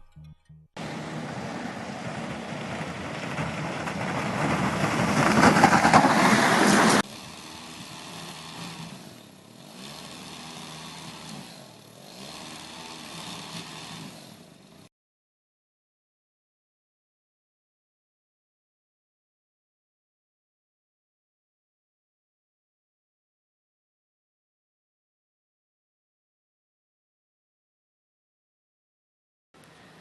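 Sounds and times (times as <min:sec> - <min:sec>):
motor vehicle engine: 0:00.0 - 0:14.9
street ambience: 0:00.8 - 0:14.9.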